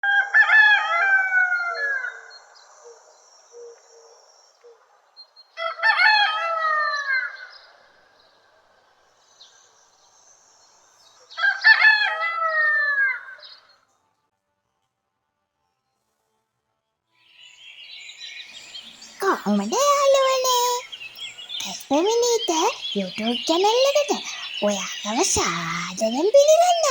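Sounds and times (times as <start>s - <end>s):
rooster crowing: 0.0s - 2.2s.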